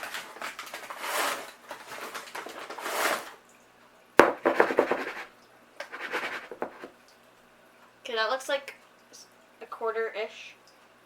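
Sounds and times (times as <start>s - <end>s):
flour rustling and scraping: 0.9s - 1.5s, 5.9s - 6.9s
cup knocking against bowl: 4.2s - 5.2s, 6.4s - 6.9s.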